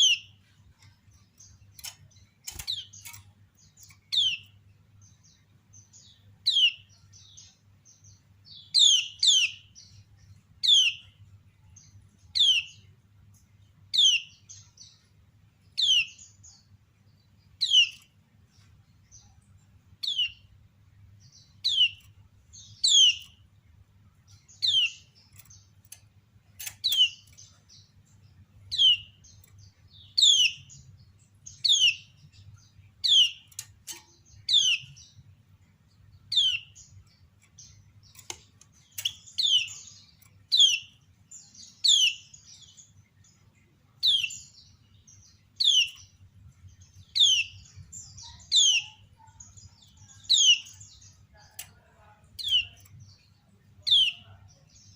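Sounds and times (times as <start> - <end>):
faint clicks: 0.7 - 4.0, 25.3 - 27.5, 33.4 - 34.2, 37.4 - 39.3, 51.4 - 51.8.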